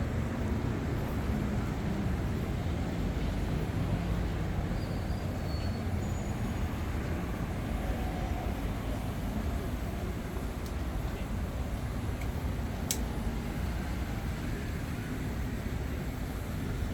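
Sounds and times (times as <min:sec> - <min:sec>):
low rumble of city traffic: 0:00.0 - 0:16.9.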